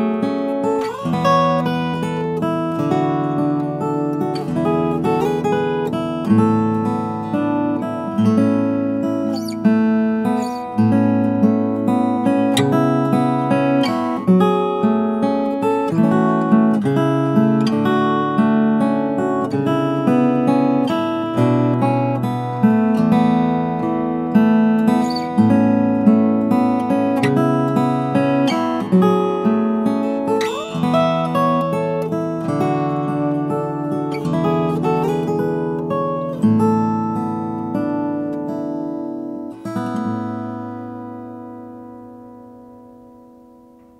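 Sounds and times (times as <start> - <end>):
fingerstyle acoustic guitar: 0.0 - 43.9.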